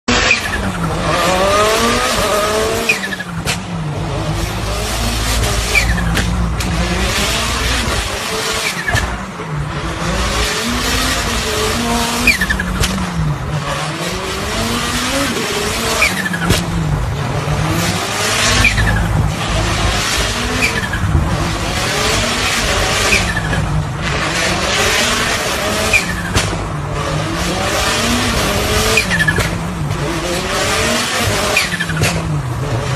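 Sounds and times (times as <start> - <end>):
rally car engine driven hard: 0.0 - 32.9
exhaust cracks: 2.8 - 13.6, 15.9 - 27.0.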